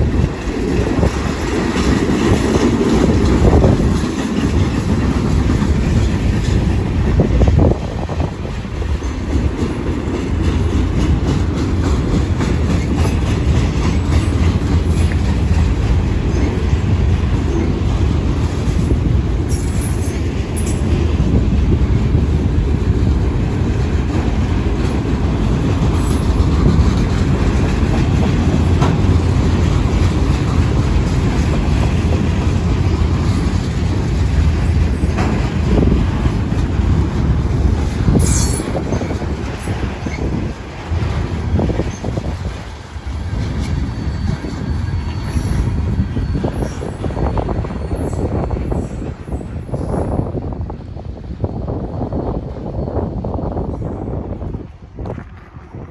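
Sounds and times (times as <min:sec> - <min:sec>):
wheels clicking over rail joints: 0:00.0 - 0:50.2
freight cars rumbling: 0:00.0 - 0:55.9
wheel squeals: 0:19.5 - 0:21.0, 0:38.1 - 0:40.4, 0:43.1 - 0:50.2.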